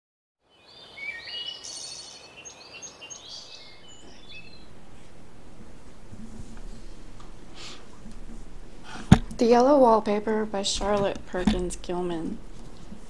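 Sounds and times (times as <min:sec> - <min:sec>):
birds chirping: 0:00.6 - 0:08.8
steady hiss: 0:01.5 - 0:10.6.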